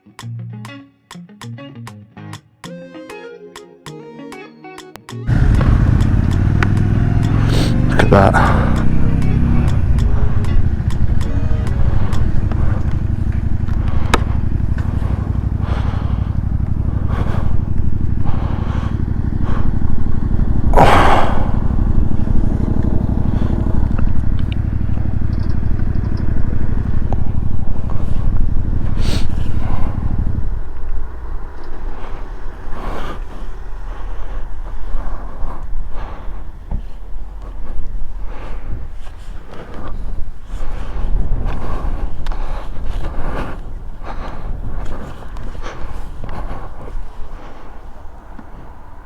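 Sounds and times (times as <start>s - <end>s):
loud rushing noise: 5.3s - 23.8s
motorcycle engine running: 5.3s - 49.0s.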